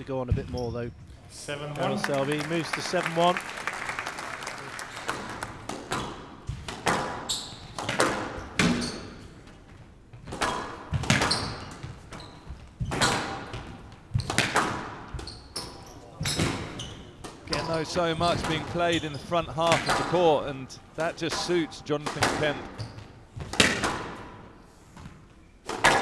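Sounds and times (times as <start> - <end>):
squash ball hits: 5.0 - 9.2, 10.1 - 15.3, 21.3 - 26.0
shoes squeaking on court: 5.8 - 20.4, 22.4 - 23.7.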